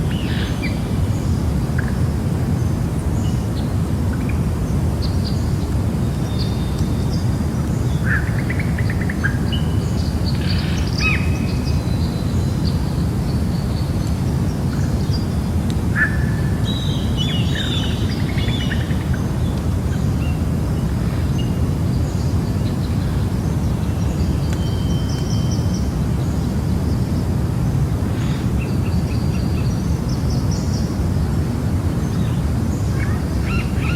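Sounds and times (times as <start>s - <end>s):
bird calls and chirps: 32.2s - 33.9s.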